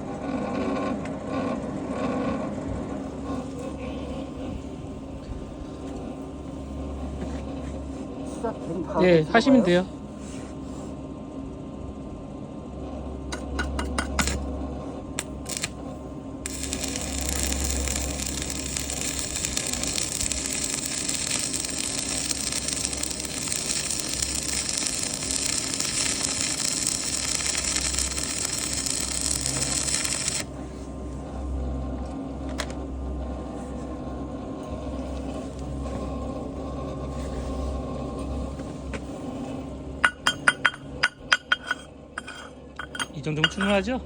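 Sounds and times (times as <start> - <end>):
welding arc crackling: 14.2 - 14.4, 15.2 - 15.8, 16.4 - 30.6
low hum: 14.2 - 41.7.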